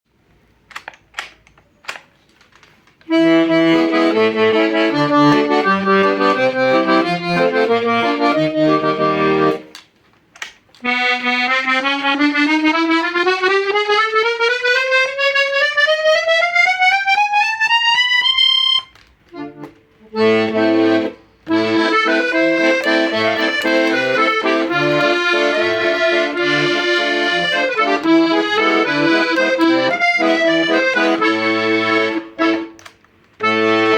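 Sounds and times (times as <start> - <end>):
accordion single-note run: 3.1 - 9.7, 10.8 - 32.8, 33.4 - 33.9
accordion chords with bass: 3.1 - 9.8, 10.8 - 33.9.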